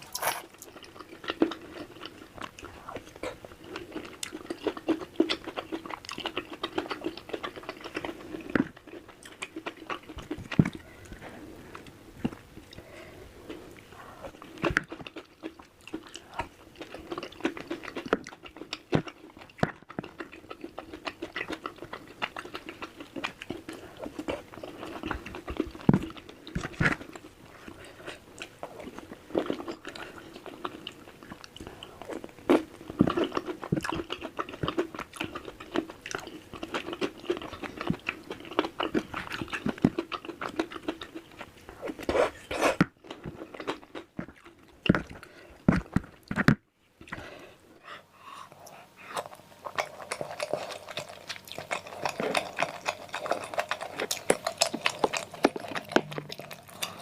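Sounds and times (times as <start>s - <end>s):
person chewing and biting food: 0.0s - 12.8s, 48.5s - 57.0s
food crunching: 0.0s - 47.4s, 48.5s - 57.0s.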